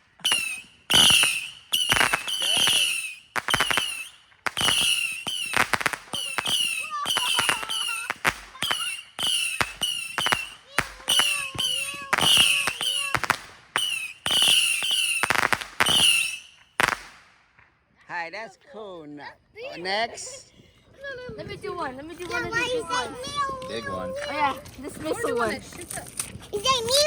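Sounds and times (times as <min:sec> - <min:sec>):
whistling firework shots cracking: 0:00.0 - 0:17.8.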